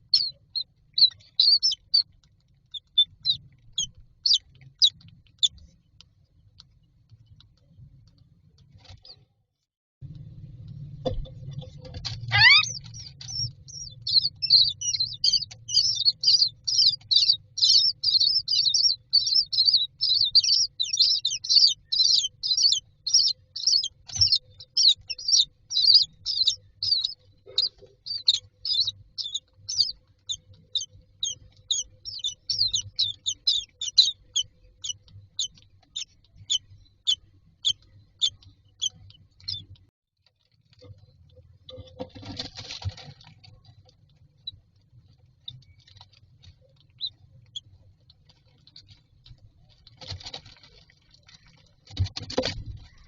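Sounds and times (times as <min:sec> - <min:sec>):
bird chicks begging calls: 0:00.0 - 0:02.1, 0:02.7 - 0:05.5, 0:12.0 - 0:39.6.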